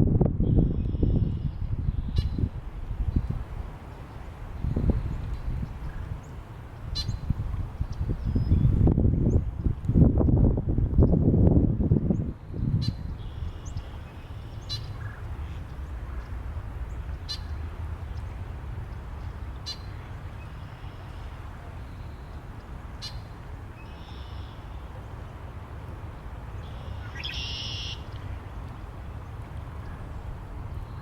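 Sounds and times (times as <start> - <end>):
low wind rumble: 0.0 - 31.0
bright bird call: 23.8 - 24.6, 26.7 - 28.0.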